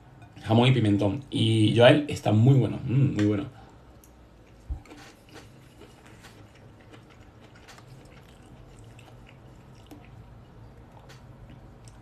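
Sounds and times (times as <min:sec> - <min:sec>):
quiet chewing: 0:03.5 - 0:12.0.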